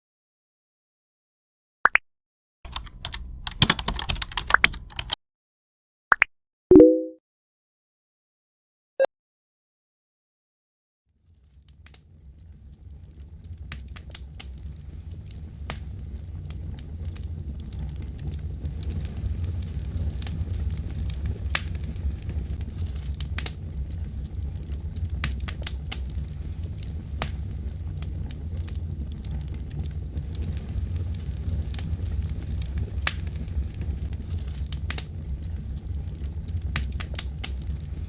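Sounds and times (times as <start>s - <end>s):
fire crackling and popping: 11.5s - 38.0s
low rumble: 14.6s - 25.2s, 26.0s - 38.0s.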